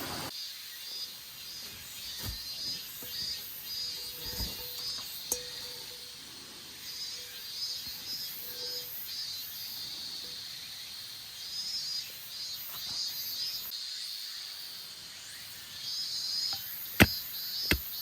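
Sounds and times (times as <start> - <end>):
insects chirring: 0.4 - 18.0.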